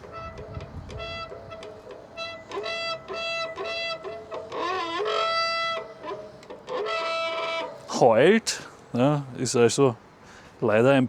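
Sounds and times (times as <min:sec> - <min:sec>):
bicycle disc brake squealing: 0:00.0 - 0:07.9.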